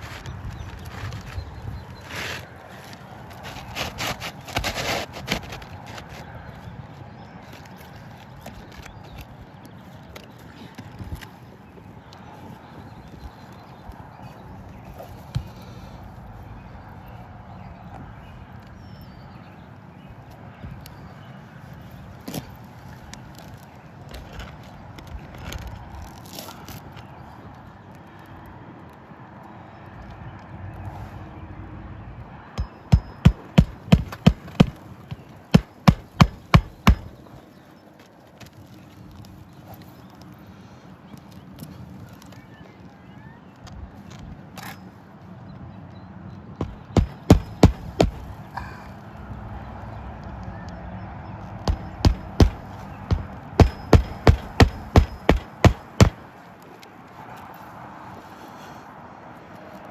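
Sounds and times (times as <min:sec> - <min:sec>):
hammer strikes: 0:32.6 - 0:34.7, 0:51.7 - 0:56.2.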